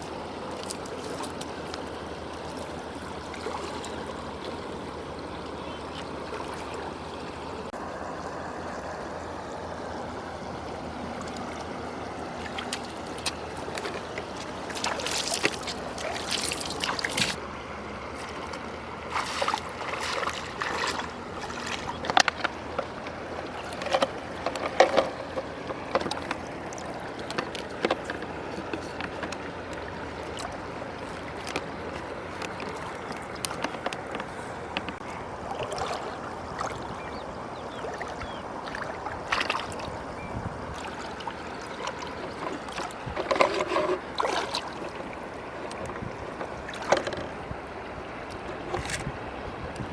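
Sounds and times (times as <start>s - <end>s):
river water running: 0.0s - 49.9s
water splashing: 0.0s - 49.9s.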